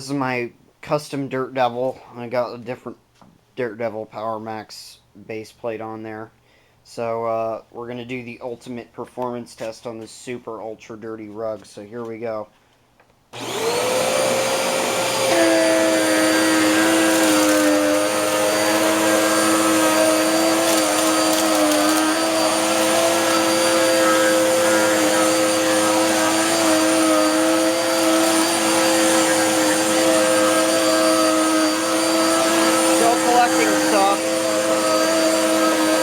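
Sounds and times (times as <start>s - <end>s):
vacuum cleaner motor whining: 13.4s - 36.0s.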